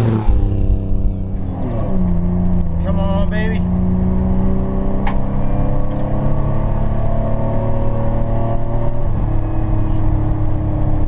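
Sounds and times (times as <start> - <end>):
truck engine at full throttle: 0.0 - 8.0.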